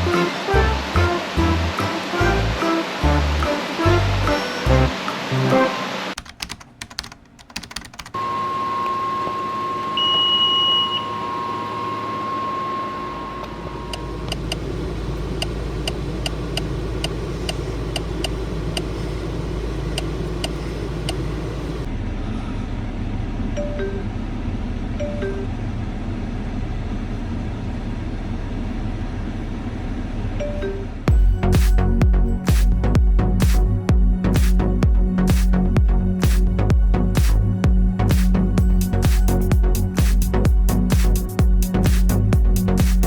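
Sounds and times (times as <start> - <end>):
car interior hum: 0.0 - 6.1, 12.3 - 43.0
held electronic tone: 0.0 - 6.2, 8.2 - 14.1
regular clicking: 6.1 - 8.2, 19.9 - 21.2.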